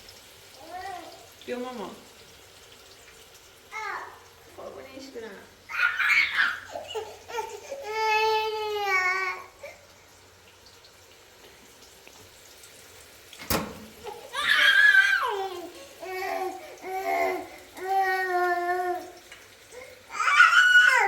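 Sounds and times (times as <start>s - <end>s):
child crying and calling: 0.6s - 1.3s, 3.7s - 4.3s, 5.7s - 9.7s, 14.1s - 19.2s, 20.1s - 21.0s.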